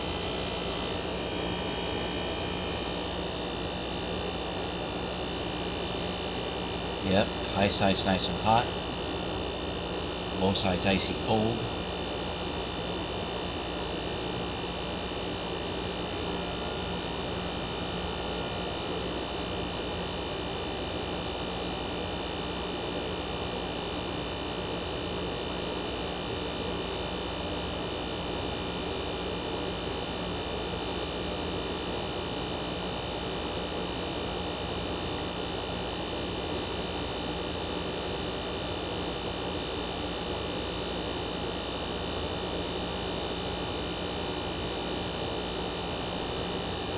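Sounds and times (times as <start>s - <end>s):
high-pitched whine: 0.0s - 9.0s, 10.0s - 12.0s
air conditioner hum: 0.0s - 27.0s, 27.7s - 46.9s.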